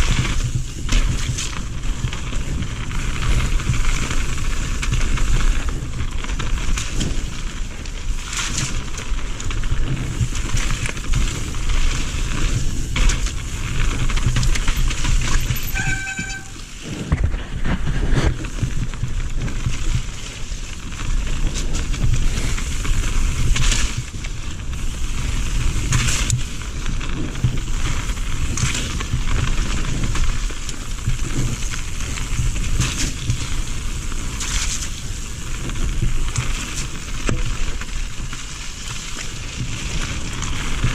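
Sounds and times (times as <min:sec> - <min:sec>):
bike rattling over rough ground: 0:00.0 - 0:40.9
bike tyre and drivetrain noise: 0:00.0 - 0:40.9
wind rumble on microphone: 0:00.0 - 0:40.9
brief squeal: 0:15.6 - 0:16.7.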